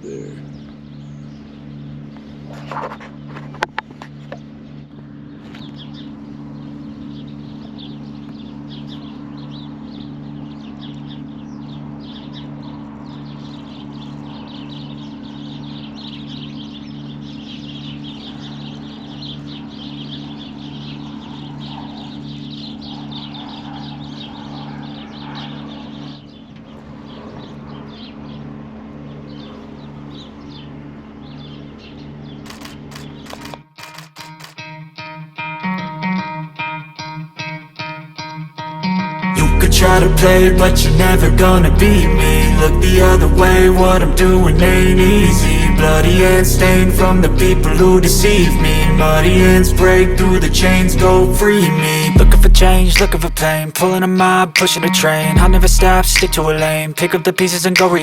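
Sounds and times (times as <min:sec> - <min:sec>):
small birds chirping: 0:05.4 - 0:33.5
throbbing low mechanical hum: 0:39.4 - 0:57.0.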